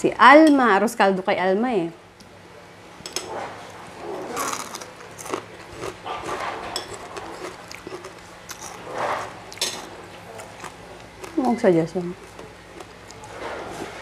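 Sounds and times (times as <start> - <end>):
people chewing food: 3.2 - 14.0
cutlery clicking on plates: 6.6 - 7.1.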